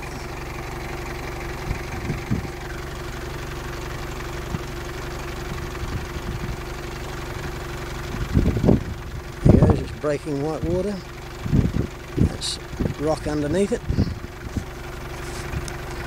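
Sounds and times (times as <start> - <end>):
engine idling: 0.0 - 16.0
wind buffeting microphone: 1.6 - 2.6, 5.8 - 6.6, 8.1 - 10.0, 11.4 - 14.8.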